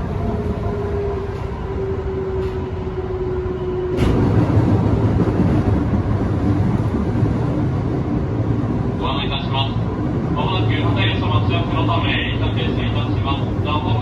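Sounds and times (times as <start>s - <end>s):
electric train hum: 0.0s - 14.0s
wheels rumbling on rails: 0.0s - 14.0s.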